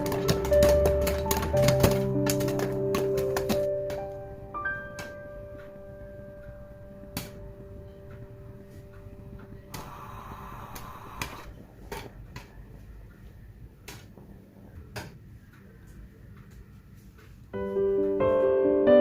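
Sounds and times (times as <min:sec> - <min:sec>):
popcorn popping in a pot: 0:00.0 - 0:04.1
rustling noise: 0:10.9 - 0:18.6.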